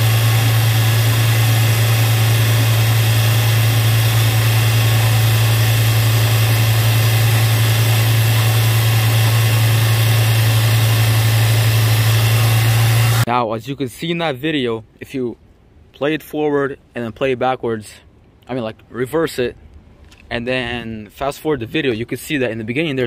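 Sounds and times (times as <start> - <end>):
car engine running: 0.0 - 13.3.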